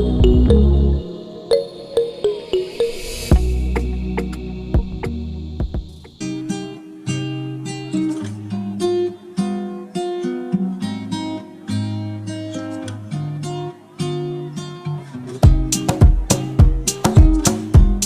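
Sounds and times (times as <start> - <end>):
music beat: 0.0 - 6.2, 15.4 - 18.0
acoustic guitar picking and strumming: 3.4 - 18.0.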